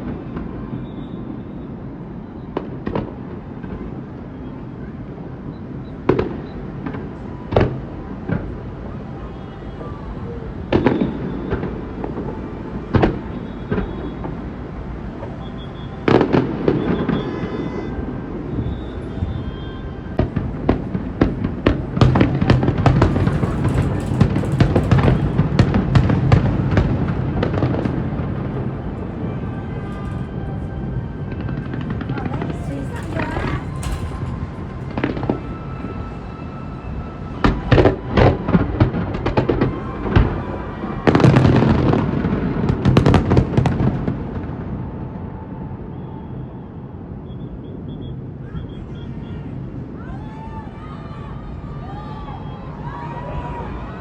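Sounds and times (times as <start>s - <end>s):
fireworks booming and crackling: 5.0s - 8.9s, 10.6s - 45.4s.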